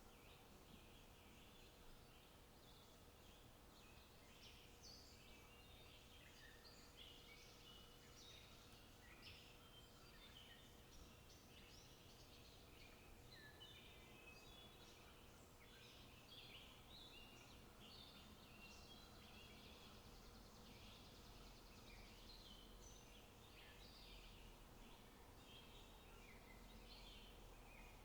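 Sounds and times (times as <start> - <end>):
quiet background hiss: 0.0 - 28.0
small birds chirping and trilling: 0.1 - 28.0.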